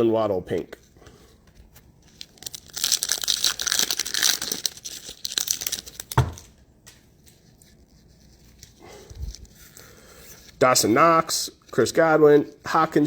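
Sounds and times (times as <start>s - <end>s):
foil wrapper crinkling: 2.0s - 10.6s
dull thump: 6.2s - 6.4s.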